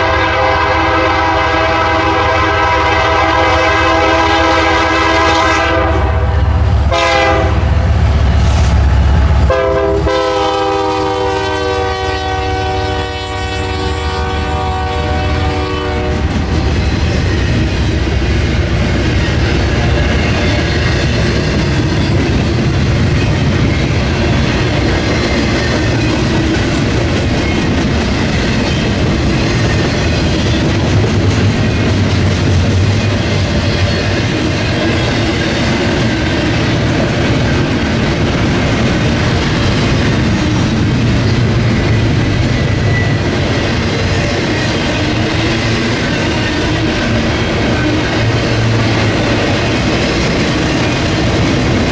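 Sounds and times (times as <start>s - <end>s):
locomotive horn blasts: 0.0s - 7.7s, 9.5s - 16.5s
locomotive engine rumbling: 1.2s - 51.9s
freight cars clattering on rails: 16.0s - 51.9s.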